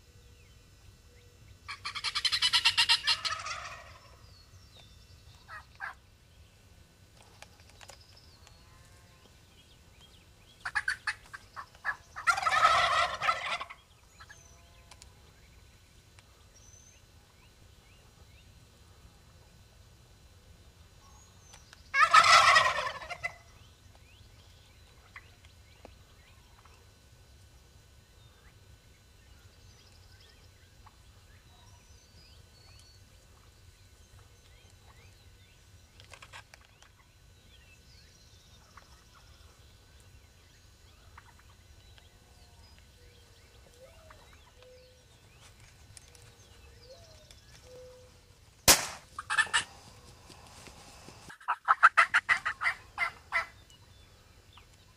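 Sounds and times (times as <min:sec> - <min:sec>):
faint bird calls: 0:01.1 - 0:06.0, 0:28.2 - 0:48.4, 0:49.1 - 0:54.9
turkey gobbling loudly: 0:01.7 - 0:04.2, 0:05.5 - 0:06.0, 0:10.6 - 0:14.4, 0:21.9 - 0:23.5, 0:41.1 - 0:41.6, 0:49.2 - 0:49.8, 0:51.3 - 0:53.6.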